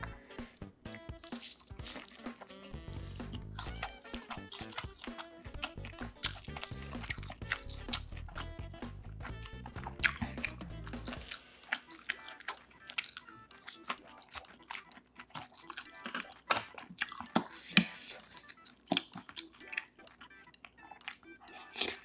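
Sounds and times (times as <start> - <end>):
background music: 0.0 - 22.0
chewing and mouth sounds: 0.8 - 22.0.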